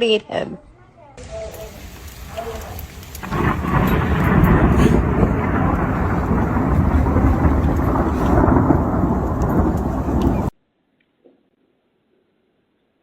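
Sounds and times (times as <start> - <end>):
loud low rumbling: 1.5 - 10.5.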